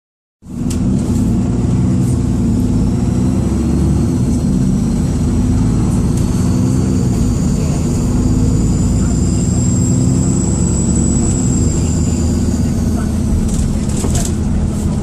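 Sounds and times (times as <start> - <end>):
bus diesel engine running: 0.4 - 15.0.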